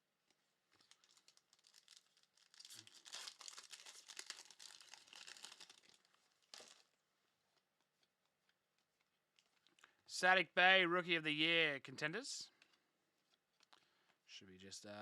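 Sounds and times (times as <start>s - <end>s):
wrapper tearing and crinkling: 0.8s - 7.0s.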